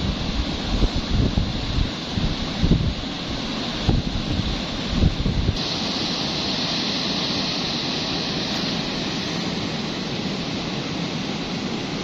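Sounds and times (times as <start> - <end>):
wind buffeting microphone: 0.0 - 5.7
river water rushing over rapids: 0.0 - 12.0.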